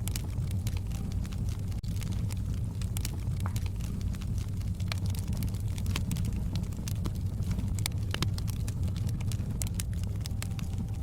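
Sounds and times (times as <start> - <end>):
flames rumbling: 0.0 - 11.0
wood fire crackling: 0.0 - 11.0.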